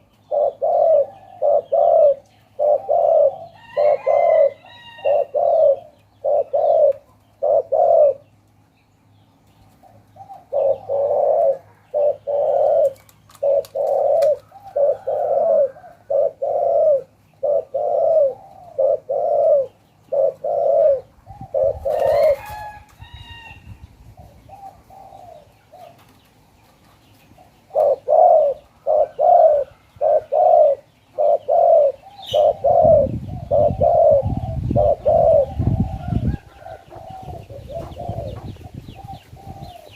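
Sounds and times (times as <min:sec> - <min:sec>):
dove cooing: 0:00.0 - 0:08.3, 0:09.7 - 0:26.1, 0:27.3 - 0:39.9
bird chirping: 0:23.2 - 0:39.9.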